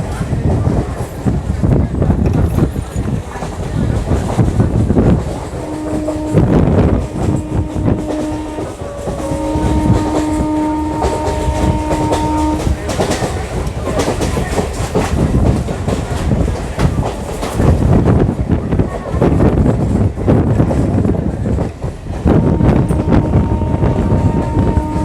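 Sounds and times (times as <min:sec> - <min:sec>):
train wheels clattering over rail joints: 0:00.1 - 0:25.0
train horn blasts: 0:05.2 - 0:13.3, 0:22.2 - 0:25.0.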